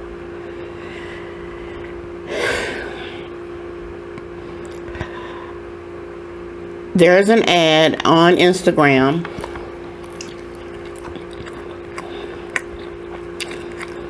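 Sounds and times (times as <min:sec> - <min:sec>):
steady low hum: 0:00.0 - 0:14.0
person sighing breath: 0:00.6 - 0:03.3, 0:04.9 - 0:05.6.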